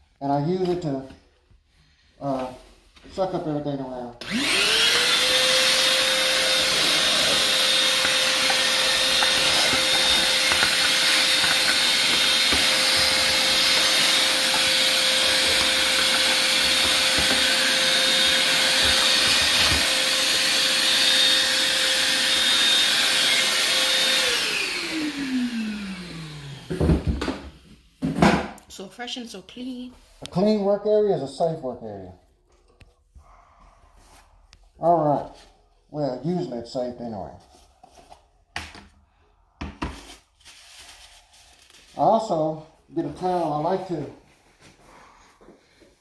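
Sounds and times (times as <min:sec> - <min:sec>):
shop vac running: 0:03.2 - 0:28.5, 0:41.9 - 0:45.9
vacuum motor winding down: 0:04.2 - 0:27.2.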